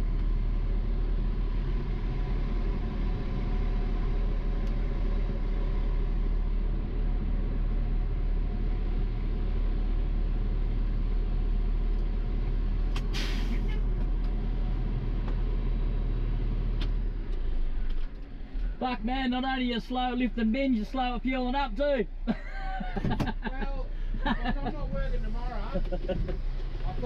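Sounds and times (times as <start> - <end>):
diesel engine idling: 0.0 - 27.0
air hissing: 13.1 - 13.8.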